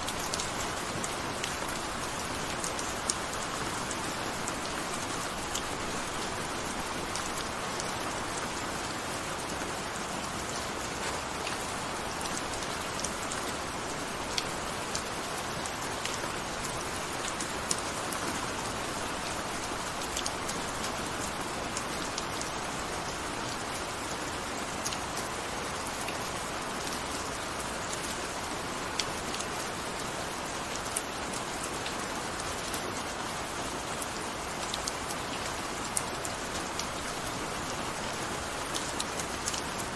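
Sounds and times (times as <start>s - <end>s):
raindrop ticks: 14.4s - 18.4s.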